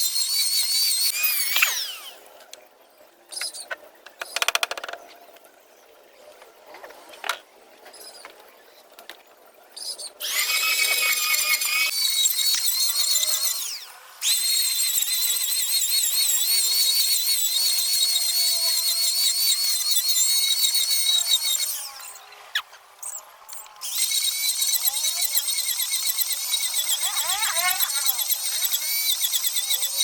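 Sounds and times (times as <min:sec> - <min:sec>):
electric power tool whining: 0:00.4 - 0:02.2, 0:10.2 - 0:22.3.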